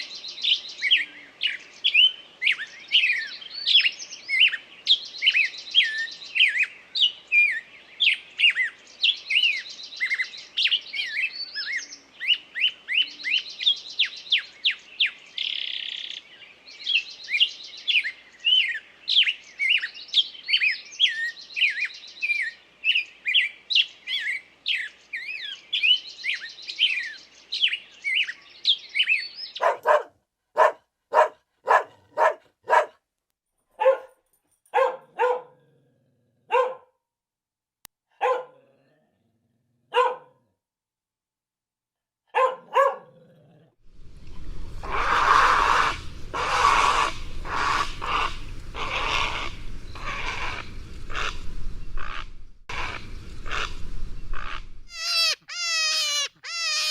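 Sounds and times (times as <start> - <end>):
small birds chirping: 0.0 - 33.0, 43.9 - 56.9
animal calling roughly: 29.6 - 32.9, 44.7 - 56.9
dog barking: 29.6 - 33.0, 33.8 - 35.6, 36.4 - 37.0, 38.1 - 38.7, 39.9 - 40.5, 42.3 - 43.2.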